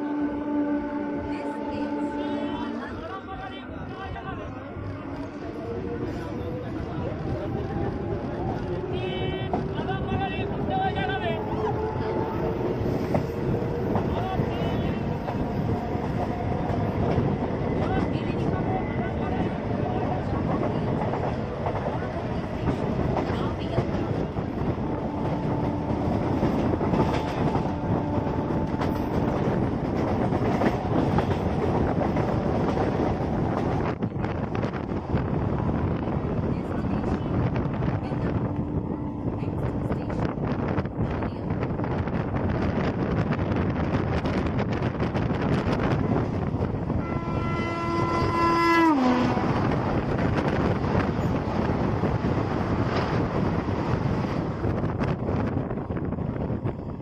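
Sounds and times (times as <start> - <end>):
train horn: 0.0 - 3.0, 10.5 - 13.6, 24.6 - 29.6, 46.9 - 49.8
train wheels rumbling and rattling: 4.1 - 57.0.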